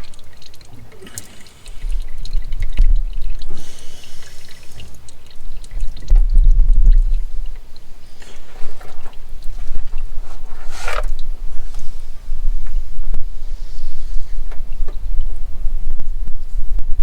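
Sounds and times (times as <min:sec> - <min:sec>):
oil pouring and dripping: 0:00.0 - 0:16.4
low rumble: 0:01.8 - 0:03.6, 0:05.6 - 0:08.0.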